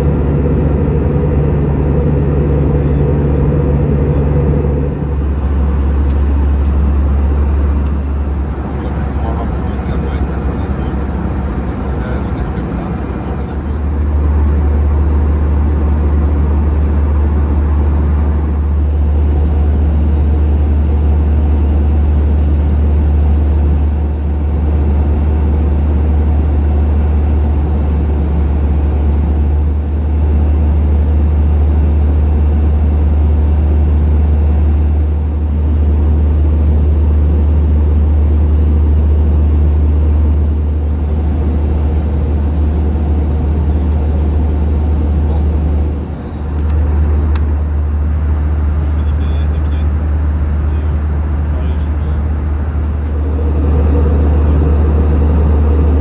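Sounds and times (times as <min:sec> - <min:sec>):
rushing air noise: 0:00.0 - 0:07.2, 0:52.6 - 0:56.0
airplane cabin engine rumble: 0:00.0 - 0:56.0.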